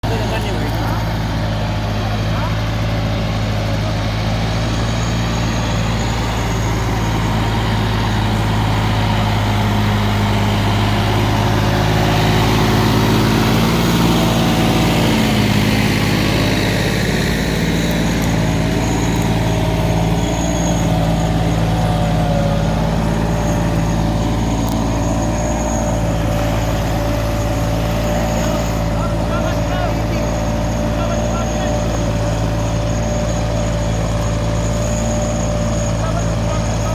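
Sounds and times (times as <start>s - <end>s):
tractor engine running: 0.0s - 36.9s.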